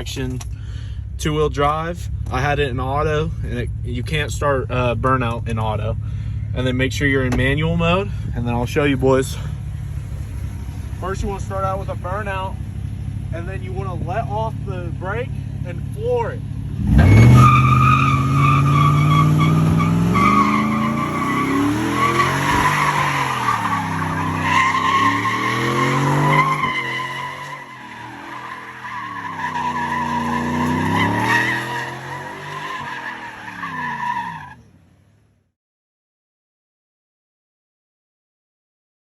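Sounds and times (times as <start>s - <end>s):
truck engine revving: 8.7s - 34.6s
tyres squealing: 17.0s - 34.6s.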